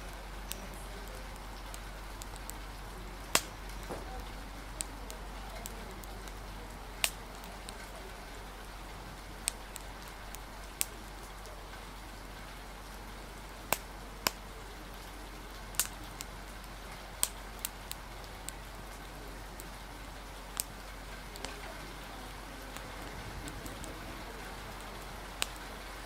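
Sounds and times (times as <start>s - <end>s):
rain hiss: 0.0s - 26.0s
wood fire crackling and popping: 0.0s - 26.0s
low rumble: 22.4s - 25.4s.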